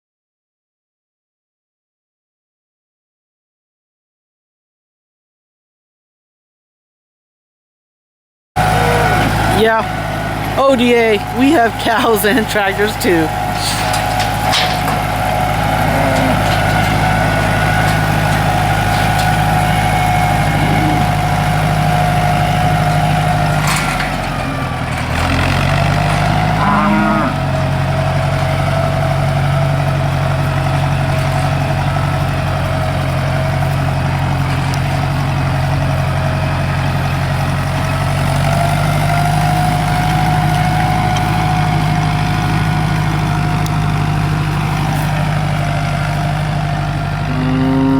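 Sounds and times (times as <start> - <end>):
cow mooing: 8.6 - 10.0, 15.4 - 22.9, 24.4 - 28.2, 47.0 - 47.9
tractor engine running: 8.6 - 47.9.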